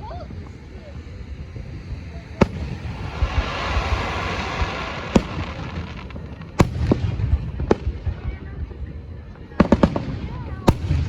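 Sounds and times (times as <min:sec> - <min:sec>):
fireworks hiss: 0:00.0 - 0:08.1
fireworks shells bursting: 0:00.4 - 0:07.5.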